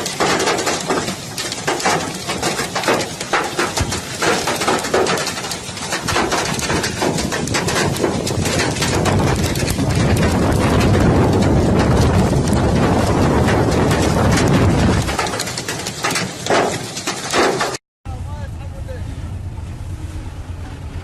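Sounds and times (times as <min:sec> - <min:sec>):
hailstones striking a hard surface: 0:00.0 - 0:17.8
low rushing noise: 0:18.1 - 0:21.0.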